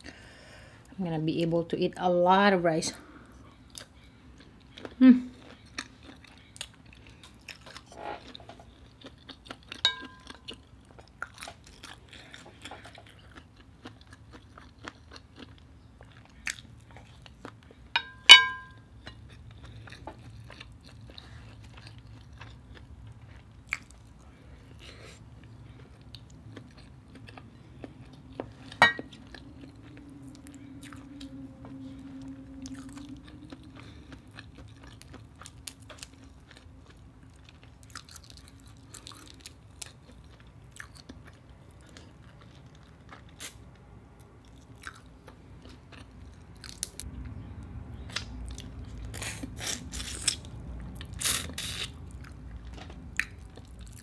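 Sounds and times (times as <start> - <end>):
dishware clinking: 9.9 - 10.3, 18.0 - 18.8
mouth chewing and biting: 44.4 - 54.0.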